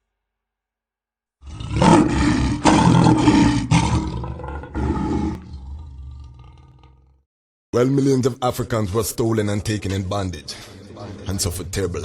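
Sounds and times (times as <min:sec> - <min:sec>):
lion roaring: 0:01.4 - 0:07.2.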